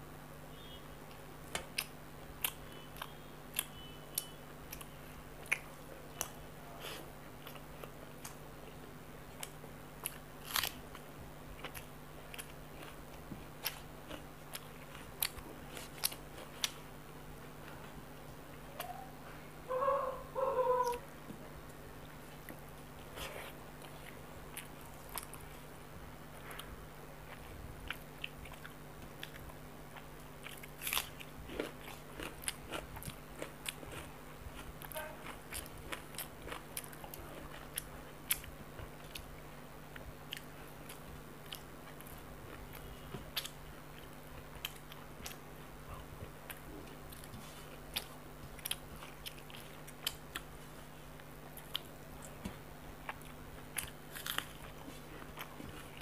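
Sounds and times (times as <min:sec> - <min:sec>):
faint steady hum: 0:00.0 - 0:56.0
sharp crunches and clicks: 0:27.3 - 0:39.3, 0:51.2 - 0:56.0.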